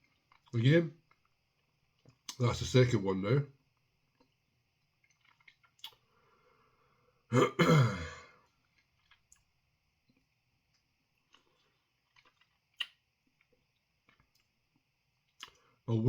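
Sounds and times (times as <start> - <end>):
man coughing: 7.3 - 8.3.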